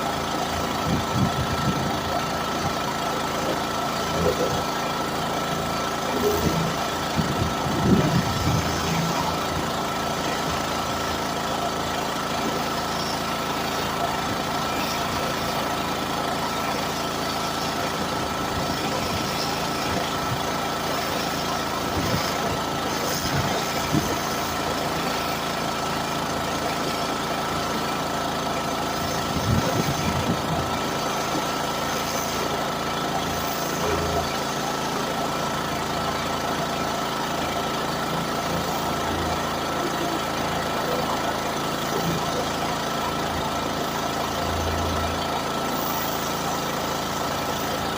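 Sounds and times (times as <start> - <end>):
pressure washer running: 0.0 - 47.9.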